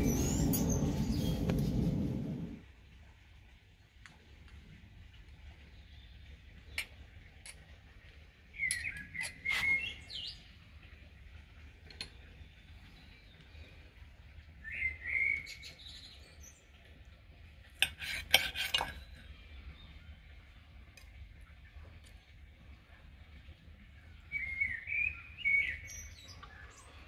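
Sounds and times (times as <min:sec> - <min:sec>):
bird chirping: 0:00.0 - 0:02.6, 0:08.6 - 0:10.5, 0:24.2 - 0:27.0.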